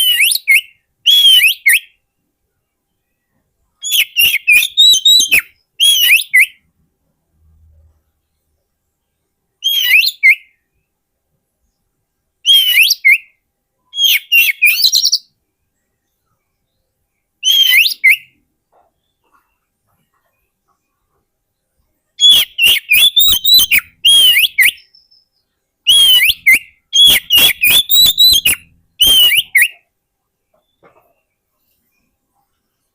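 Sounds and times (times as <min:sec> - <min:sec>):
bird whistling song: 0:00.0 - 0:02.0, 0:03.0 - 0:06.7, 0:09.6 - 0:10.8, 0:12.4 - 0:15.4, 0:17.4 - 0:18.4, 0:22.2 - 0:29.9.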